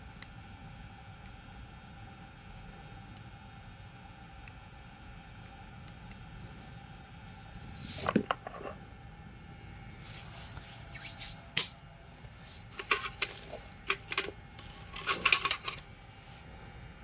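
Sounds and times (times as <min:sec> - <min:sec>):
small tool parts clicking and clinking: 0:12.8 - 0:15.9.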